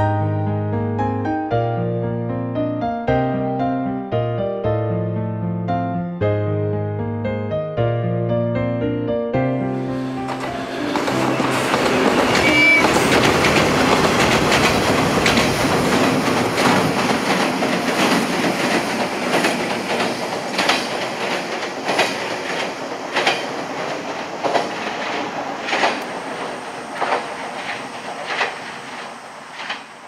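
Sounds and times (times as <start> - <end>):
electric train rumbling past: 9.6 - 30.0
wheels clacking over rail joints: 10.2 - 30.0.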